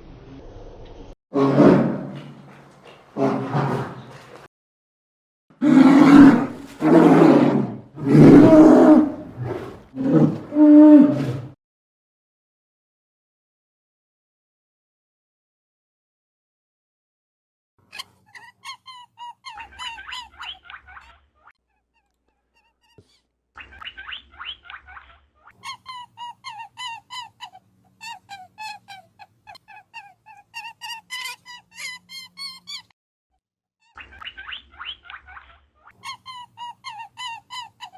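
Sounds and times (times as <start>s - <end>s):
big cat roaring: 1.3s - 4.2s, 5.6s - 11.6s.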